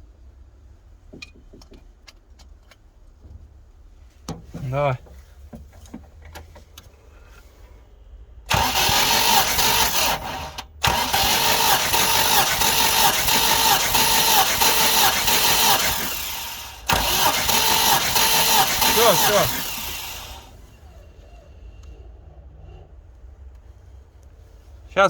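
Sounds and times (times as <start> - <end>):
engine cranking by starter motor: 8.5 - 21.2.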